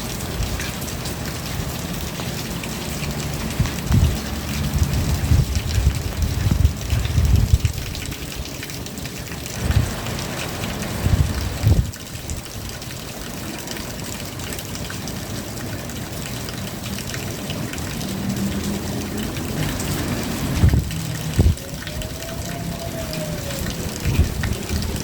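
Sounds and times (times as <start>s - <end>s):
rain pattering: 0.0s - 25.0s
water running: 15.3s - 25.0s
low rumbling surges: 19.3s - 25.0s.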